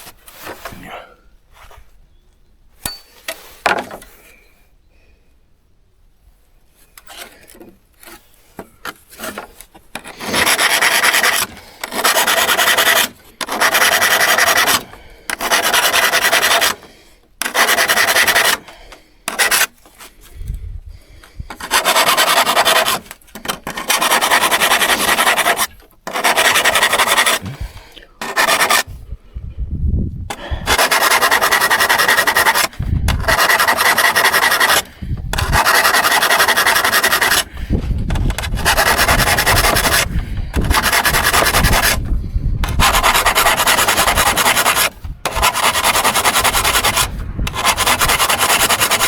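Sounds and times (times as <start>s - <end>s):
sanding strokes on a hand saw: 9.1s - 18.7s, 19.3s - 19.8s, 21.5s - 29.0s, 30.3s - 49.0s.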